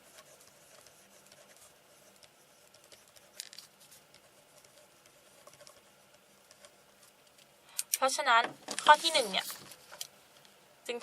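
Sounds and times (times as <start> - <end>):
faint scratches and ticks: 0.0 - 7.5.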